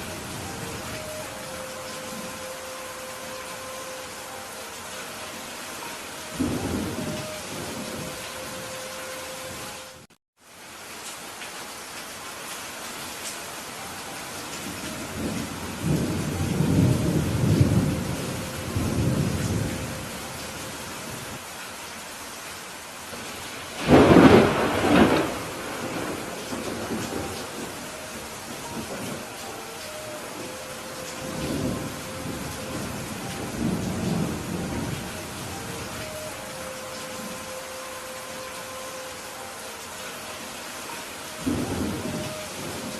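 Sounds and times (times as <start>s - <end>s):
heavy rain falling: 0.0s - 42.9s
thunder rumbling: 6.4s - 8.7s, 14.7s - 20.4s, 23.7s - 37.6s, 41.4s - 42.9s.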